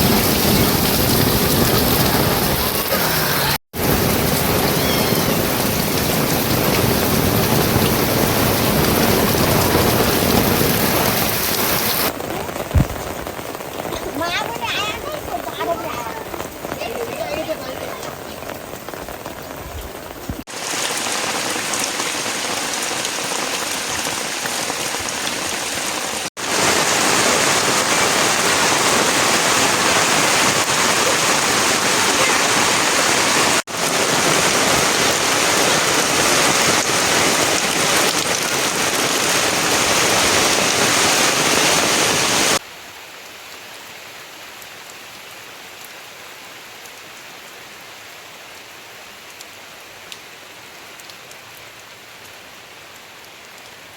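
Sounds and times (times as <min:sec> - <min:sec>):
heavy rain hiss: 0:00.0 - 0:43.0.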